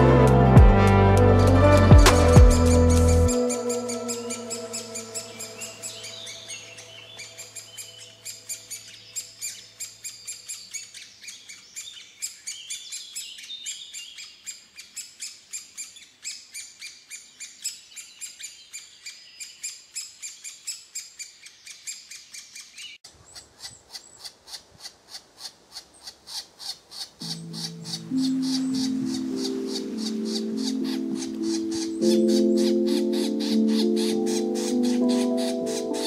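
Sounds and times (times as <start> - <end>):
birds chirping rapidly: 0.0 - 36.0.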